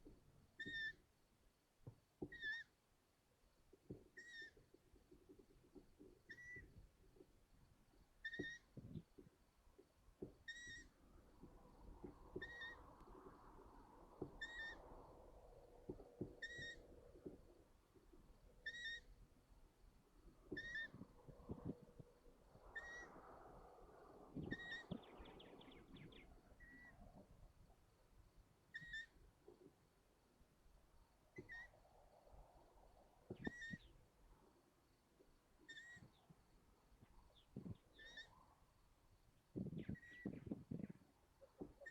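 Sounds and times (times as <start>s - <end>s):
owlets squeaky begging calls: 0.6s - 1.0s, 8.2s - 8.7s, 10.5s - 10.9s, 12.4s - 12.8s, 14.4s - 14.8s, 16.4s - 16.8s, 18.6s - 19.1s, 20.5s - 21.0s, 22.8s - 23.2s, 24.4s - 25.1s, 28.7s - 29.2s, 33.4s - 33.9s, 35.7s - 36.2s, 37.9s - 38.4s.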